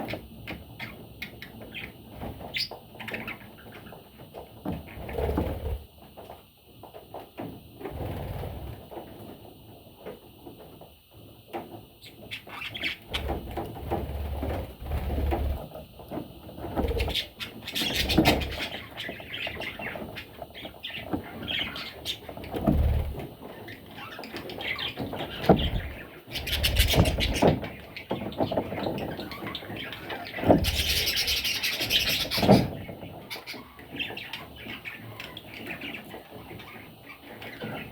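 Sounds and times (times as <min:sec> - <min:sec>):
budgerigars chirping and chattering: 0:00.0 - 0:04.1, 0:12.0 - 0:15.4, 0:16.6 - 0:37.9.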